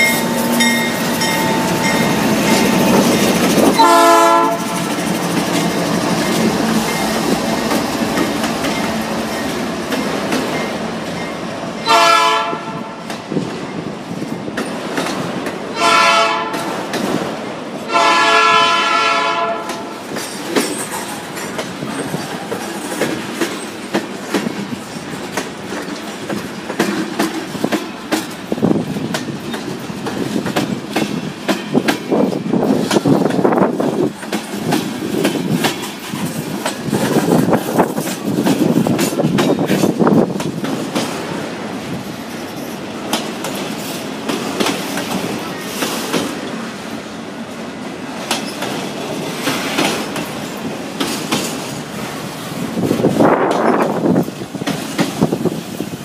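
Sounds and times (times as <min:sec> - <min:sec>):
wheels clicking over rail joints: 0:00.0 - 0:11.4, 0:14.3 - 0:15.8, 0:16.4 - 0:17.5, 0:19.6 - 0:46.6, 0:48.1 - 0:56.0
train wheels rolling on rails: 0:00.0 - 0:56.0
locomotive horn: 0:03.8 - 0:04.8, 0:11.8 - 0:13.0, 0:15.7 - 0:16.7, 0:17.9 - 0:19.9.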